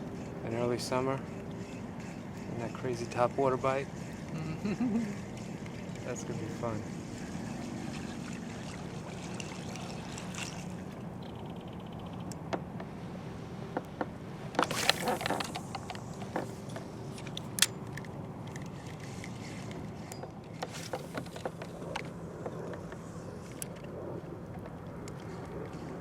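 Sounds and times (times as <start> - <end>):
fishing tackle clicking and rattling: 8.2 - 12.5, 14.6 - 22.1.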